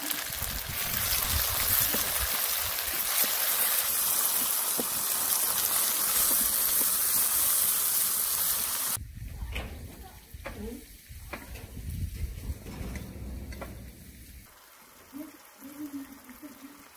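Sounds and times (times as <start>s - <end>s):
vegetables sizzling in a pan: 0.0s - 9.0s, 13.9s - 16.9s.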